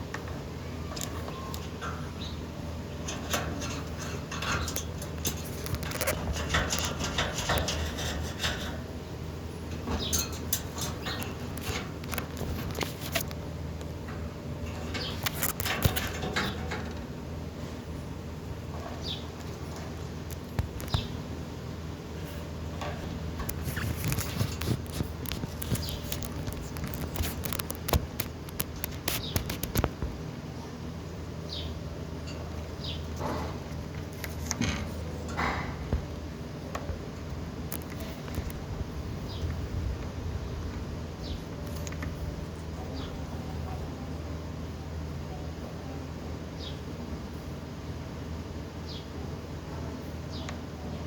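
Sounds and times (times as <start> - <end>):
steady low hum: 0.0 - 51.0
parrot scratching and clicking: 2.9 - 8.9, 9.7 - 14.0, 14.7 - 17.0, 23.4 - 30.0
parrot pecking and nibbling: 23.4 - 29.9.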